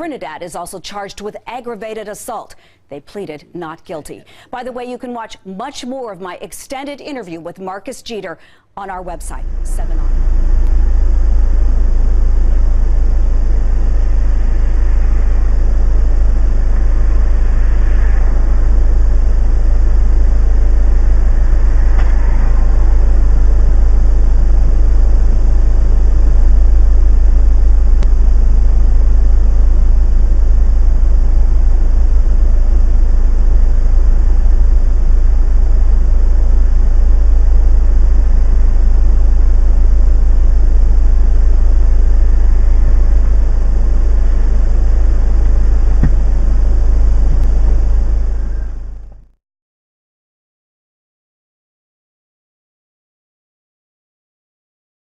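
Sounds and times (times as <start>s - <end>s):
car engine and road noise: 43.9s - 49.2s.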